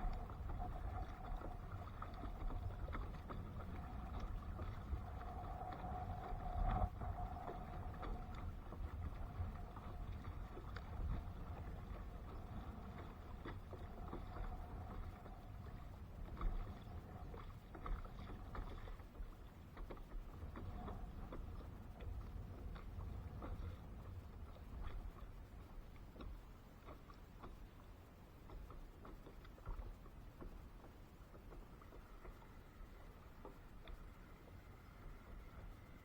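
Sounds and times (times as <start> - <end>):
low rumble: 0.0 - 19.4
water around kayak: 0.0 - 36.0.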